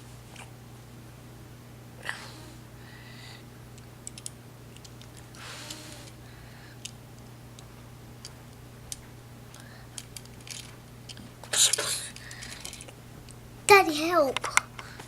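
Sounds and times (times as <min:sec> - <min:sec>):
plastic toy pieces clicking: 0:04.1 - 0:06.2, 0:09.5 - 0:12.9.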